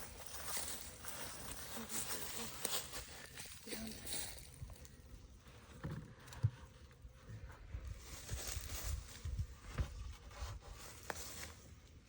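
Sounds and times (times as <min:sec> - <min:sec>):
footsteps: 0:00.0 - 0:06.6.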